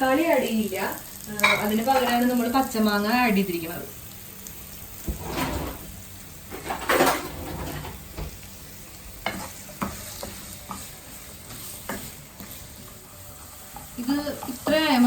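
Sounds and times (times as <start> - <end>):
onions sizzling in a pan: 0.0 - 15.0
spoon tapping a pan: 9.2 - 12.6.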